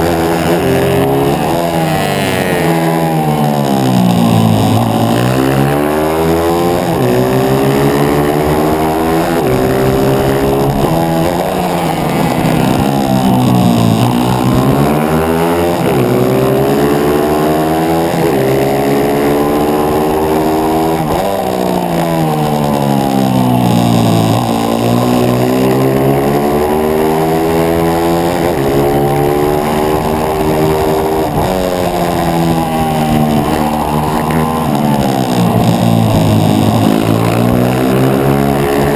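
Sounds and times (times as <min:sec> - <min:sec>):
pit bike engine revving: 0:00.0 - 0:38.9.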